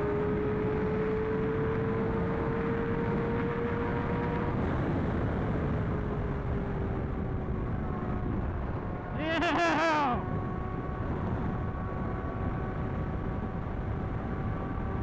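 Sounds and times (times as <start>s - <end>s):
wind rush on microphone: 3.0s - 9.2s, 10.2s - 15.0s.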